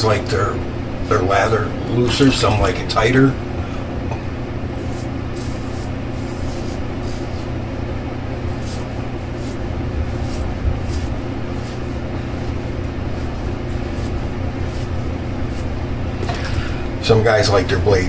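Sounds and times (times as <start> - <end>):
low hum: 0.0 - 18.0
razor scratching across stubble: 4.8 - 7.6, 8.5 - 15.8.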